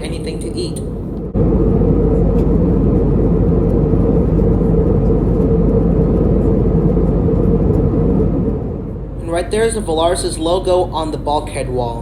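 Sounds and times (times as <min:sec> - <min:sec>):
aircraft cabin engine rumble: 0:00.0 - 0:12.0
steady hum: 0:00.0 - 0:12.0.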